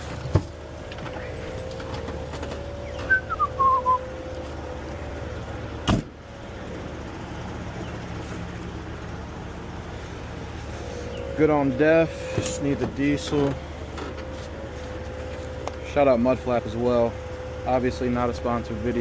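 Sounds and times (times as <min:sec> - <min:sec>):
falling whistle-like chirp: 0:03.0 - 0:04.1
truck door shutting: 0:05.8 - 0:06.2.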